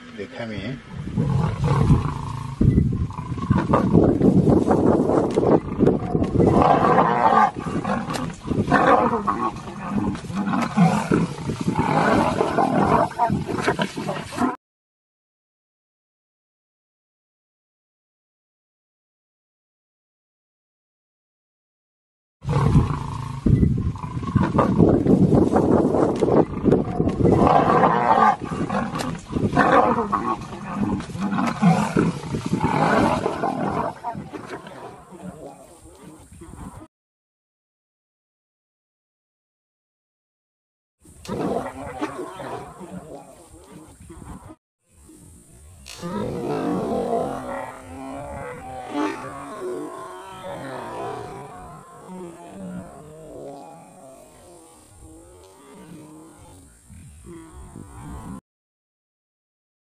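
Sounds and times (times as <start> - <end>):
lions roaring while fighting: 1.0 - 14.5, 22.4 - 25.1, 25.8 - 36.8, 41.2 - 44.5, 45.8 - 56.7.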